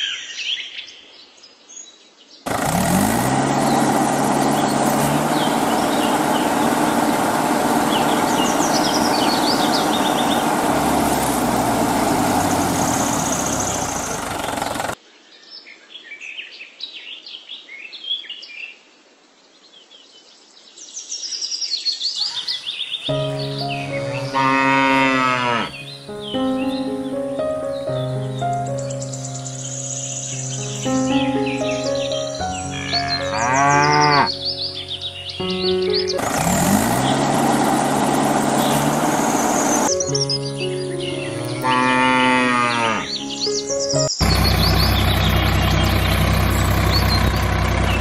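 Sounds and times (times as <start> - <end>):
birds chirping: 0.0 - 15.0, 21.3 - 48.0
motor running: 2.5 - 15.0, 36.2 - 40.0, 44.2 - 48.0.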